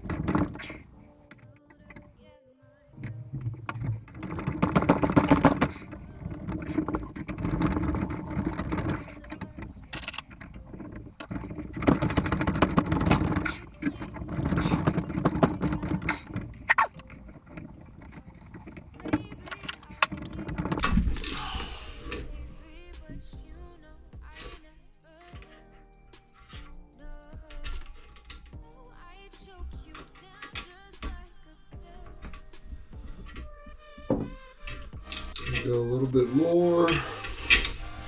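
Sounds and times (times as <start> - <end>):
metallic clicking and clinking: 0.0 - 2.2, 3.0 - 21.6, 29.6 - 35.8.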